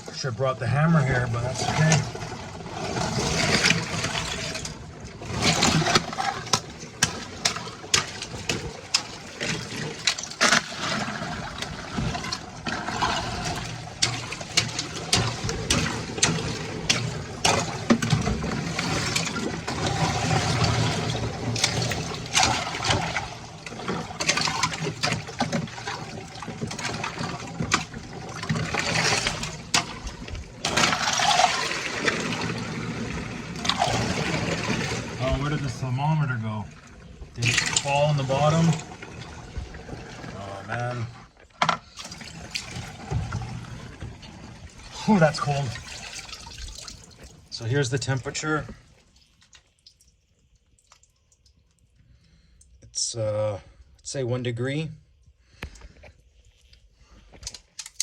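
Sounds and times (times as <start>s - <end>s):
water sloshing and splashing: 0.0s - 53.0s
ice cracking and knocking: 1.4s - 35.8s.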